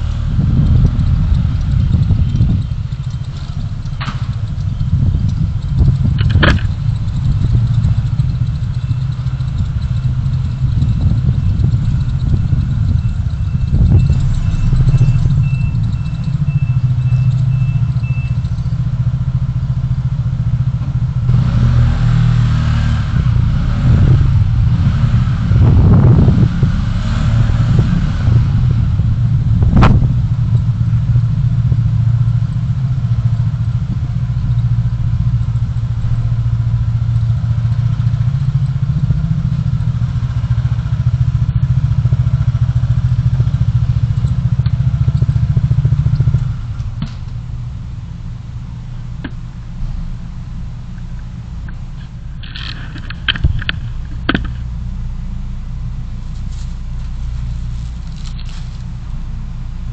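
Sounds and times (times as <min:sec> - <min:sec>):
engine and road rumble: 0:00.0 - 0:59.9
passing traffic: 0:00.0 - 0:59.9
sharp click: 0:03.0 - 0:08.6
faint high beep: 0:12.8 - 0:18.8.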